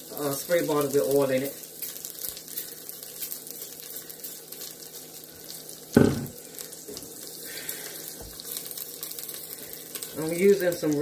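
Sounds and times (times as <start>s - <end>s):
oil sizzling in a pot: 0.0s - 11.0s
loud knock: 6.0s - 6.3s.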